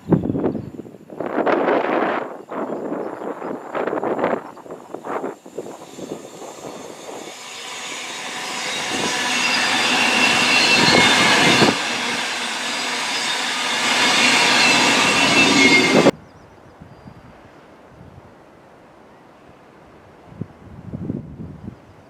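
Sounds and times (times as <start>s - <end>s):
train wheels rumbling on rails: 1.2s - 16.2s
high-pitched squealing: 2.9s - 16.1s.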